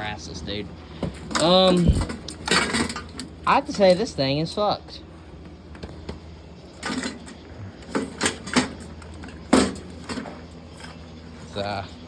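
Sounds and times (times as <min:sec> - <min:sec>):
steady low hum: 0:00.0 - 0:12.0
knocks and rattles of fan parts: 0:00.9 - 0:04.2, 0:05.4 - 0:11.0.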